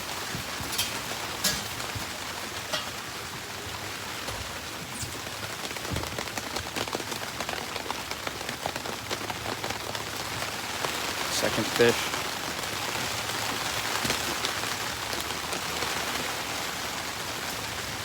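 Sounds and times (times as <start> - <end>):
freezing rain ticking: 0.0 - 18.0.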